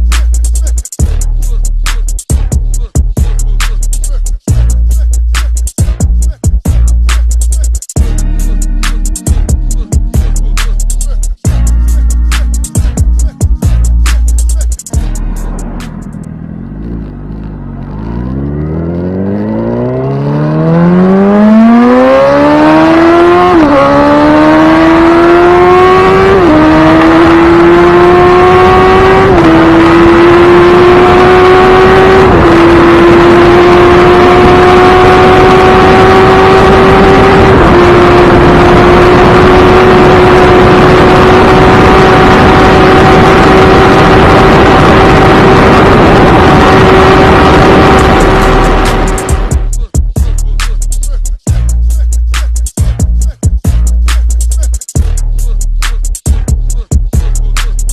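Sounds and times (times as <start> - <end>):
motorcycle engine accelerating: 8.0 - 49.9.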